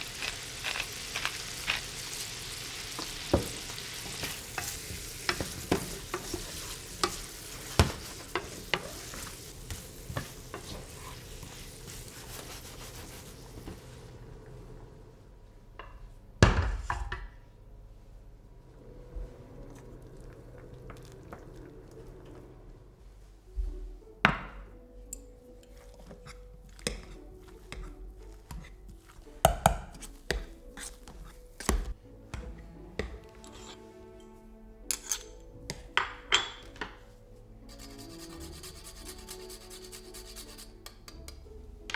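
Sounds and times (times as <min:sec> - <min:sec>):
food sizzling in a frying pan: 0:00.0 - 0:13.3.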